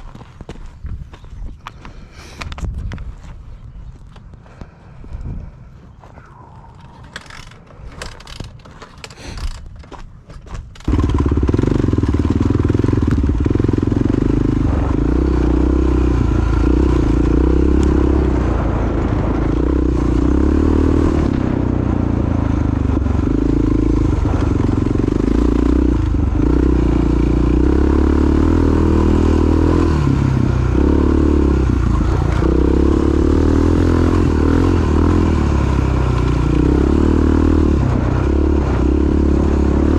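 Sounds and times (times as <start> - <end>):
motorcycle engine running: 10.8 - 39.9.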